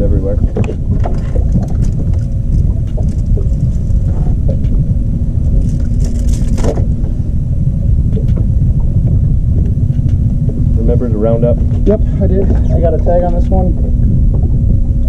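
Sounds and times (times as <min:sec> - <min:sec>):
boat motor rumbling: 0:00.0 - 0:15.0.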